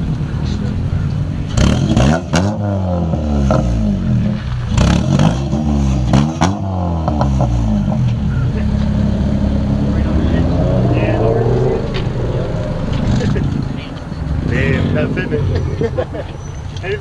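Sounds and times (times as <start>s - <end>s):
car engine idling: 0.0s - 1.7s, 6.8s - 17.0s
car engine revving: 0.6s - 16.8s
exhaust cracks: 3.1s - 16.9s.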